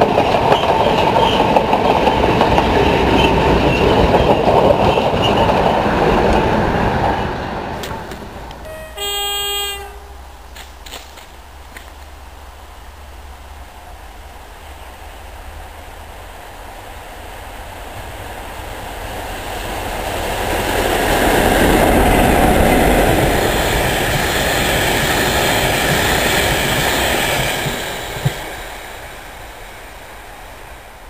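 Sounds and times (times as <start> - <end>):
wagons rolling on rails: 0.0 - 8.5
diesel locomotive passing: 0.0 - 10.6, 11.4 - 31.0.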